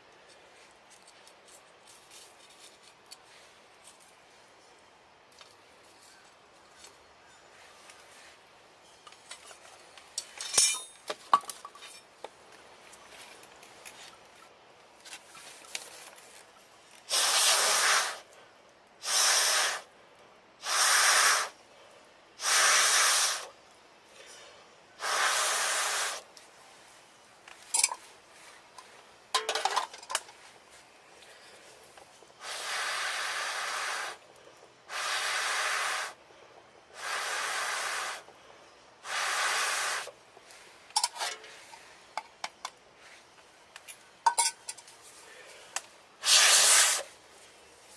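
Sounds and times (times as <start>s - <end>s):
puffs of breath through a pipe: 19.0s - 19.9s, 20.6s - 23.5s, 24.1s - 26.2s, 32.4s - 34.2s, 34.9s - 40.1s.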